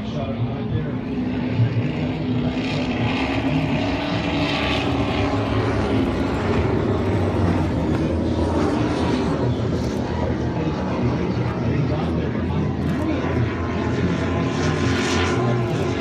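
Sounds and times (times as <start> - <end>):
large engine drone: 0.0 - 16.0.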